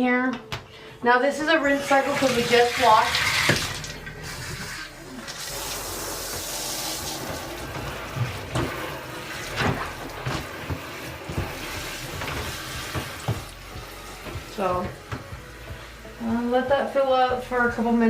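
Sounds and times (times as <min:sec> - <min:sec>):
water pouring into washing machine: 0:01.6 - 0:16.0.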